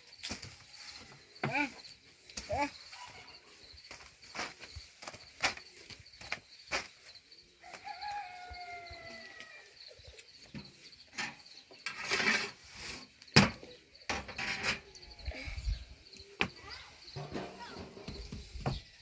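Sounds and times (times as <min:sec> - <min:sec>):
rustle: 0:00.0 - 0:15.1
rooster crowing: 0:07.6 - 0:09.7
knocks and clatter: 0:17.2 - 0:18.8.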